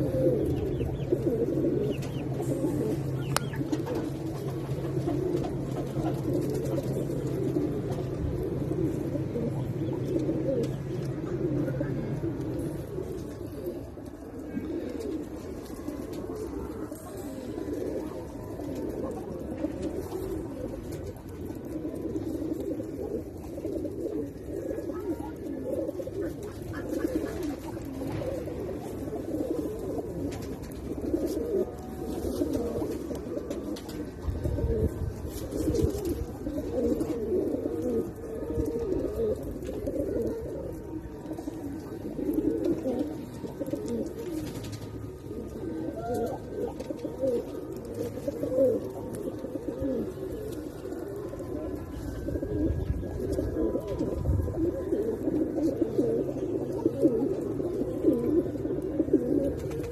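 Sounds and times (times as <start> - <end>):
pigeons cooing: 0.0 - 59.9.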